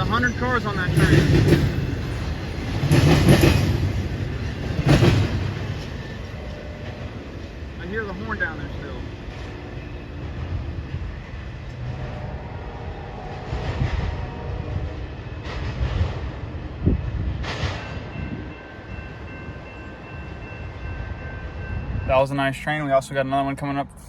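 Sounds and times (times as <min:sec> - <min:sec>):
freight train rumbling: 0:00.0 - 0:24.0
distant train horn: 0:05.2 - 0:10.3, 0:11.5 - 0:15.6.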